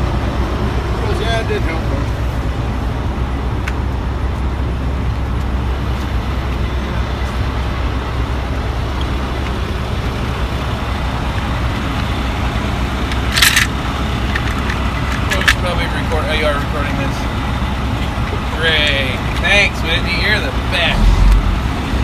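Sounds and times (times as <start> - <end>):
motor vehicle rumble: 20.6 - 22.0.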